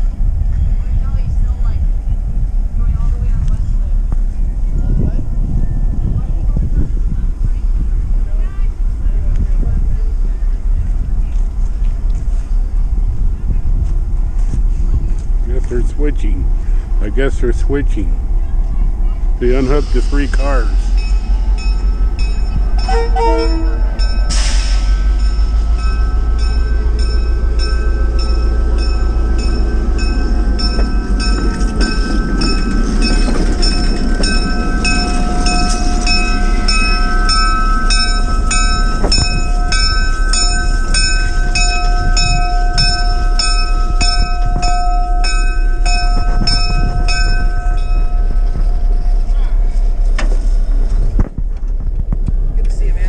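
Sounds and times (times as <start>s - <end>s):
diesel locomotive rumble: 0.0s - 53.0s
bell ringing: 21.0s - 49.6s.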